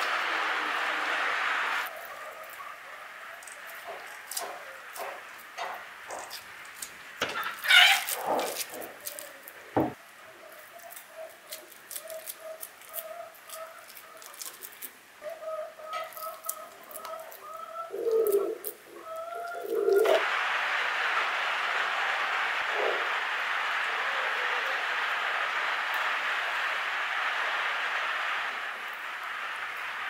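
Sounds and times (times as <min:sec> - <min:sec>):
knock: 0:09.8 - 0:10.0.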